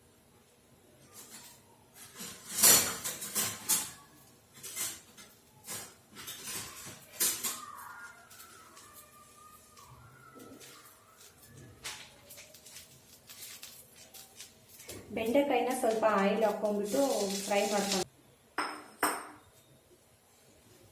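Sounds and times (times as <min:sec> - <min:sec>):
metal utensils clattering on a pan: 0:02.0 - 0:07.7.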